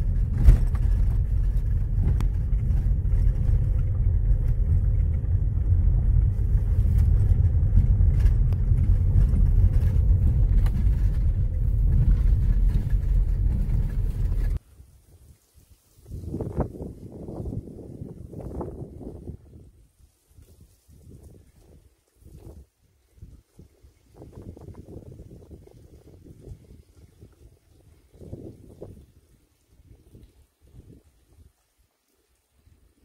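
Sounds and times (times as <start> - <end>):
car driving on gravel: 0.0 - 14.6.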